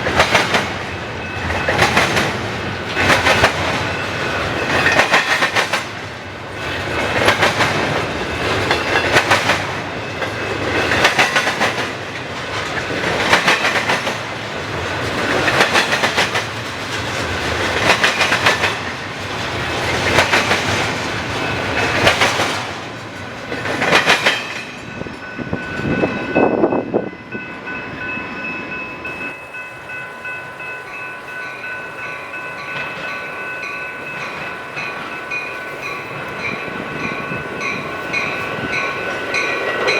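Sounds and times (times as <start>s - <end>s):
train wheels clattering over rail joints: 0.0s - 26.4s.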